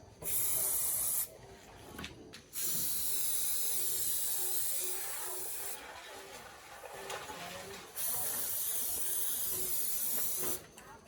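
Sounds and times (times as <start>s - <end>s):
spray hissing from nozzle: 0.2s - 1.3s, 2.6s - 5.6s.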